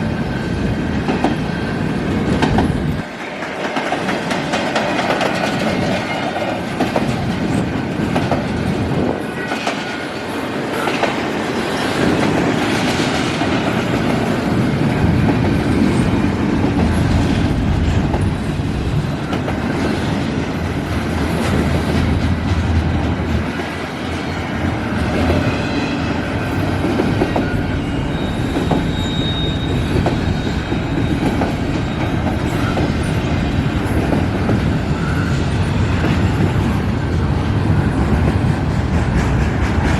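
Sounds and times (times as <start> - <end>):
train wheels clacking over rail joints: 2.1 - 25.6, 37.9 - 39.9
high wheel squeal: 27.3 - 33.4, 34.8 - 36.4.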